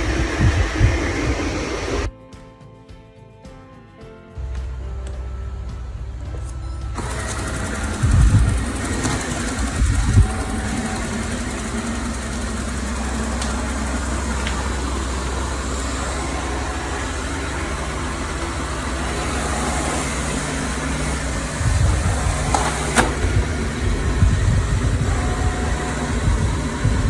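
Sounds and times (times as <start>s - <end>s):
low thumps: 0.0s - 2.1s, 7.8s - 27.0s
robot vacuum motor hum: 0.0s - 2.1s, 7.0s - 27.0s.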